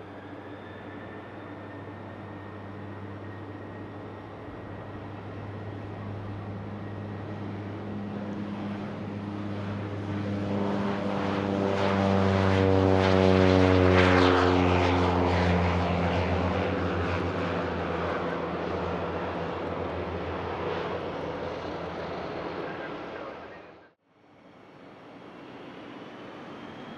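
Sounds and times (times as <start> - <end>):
aircraft engine passing: 0.0 - 26.9.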